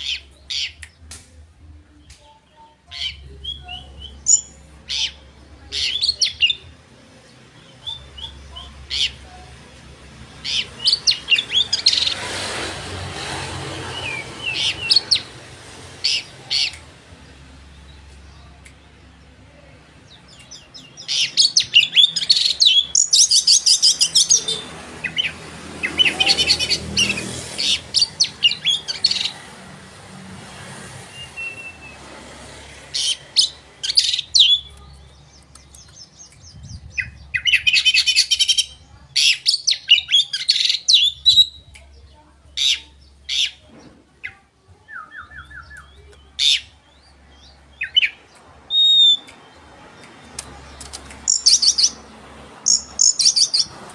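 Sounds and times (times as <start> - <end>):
magpie-robin singing trills: 51.2 - 52.0, 52.6 - 53.7.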